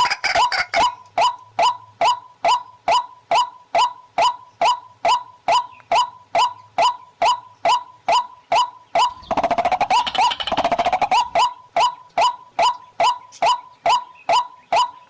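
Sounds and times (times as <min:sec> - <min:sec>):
bird calling: 0:00.0 - 0:15.0
bird chattering rattle: 0:08.4 - 0:15.0.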